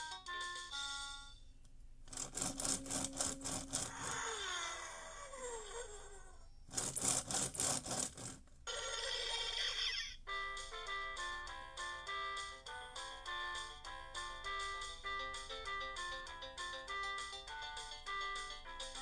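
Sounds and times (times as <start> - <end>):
toy jingle tune: 0.0 - 1.5, 8.7 - 19.0
toy fast ringing bell: 2.2 - 4.2, 10.3 - 19.0.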